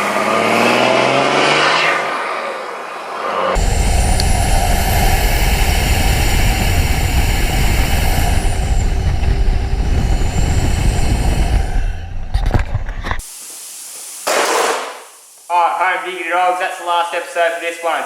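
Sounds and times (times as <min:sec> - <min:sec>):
vehicle engine rumbling: 0:00.0 - 0:13.2.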